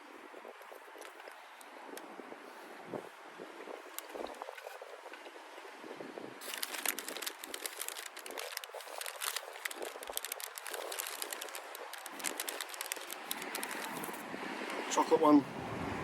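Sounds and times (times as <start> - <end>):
paper bag crinkling: 6.4 - 14.2.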